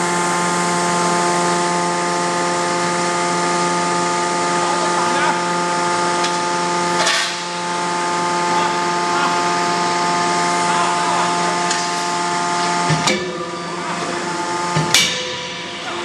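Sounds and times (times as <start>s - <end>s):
machinery hum: 0.0s - 16.0s
sharp metallic strike: 14.8s - 16.0s.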